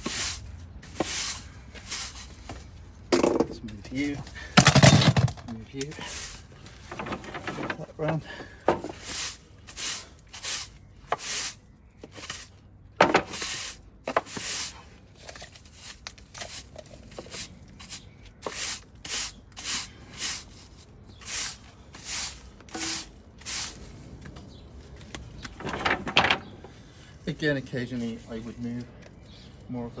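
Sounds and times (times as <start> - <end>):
broom sweeping: 0.0 - 2.7, 6.0 - 7.8, 8.8 - 14.9, 15.6 - 24.2, 25.6 - 28.7.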